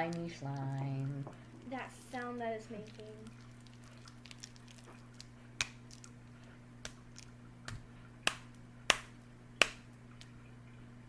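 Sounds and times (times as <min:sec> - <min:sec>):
slime popping and clicking: 0:04.1 - 0:06.2.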